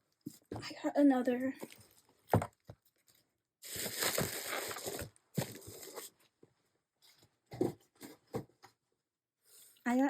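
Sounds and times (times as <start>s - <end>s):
packaging rustling and crinkling: 1.7s - 6.3s.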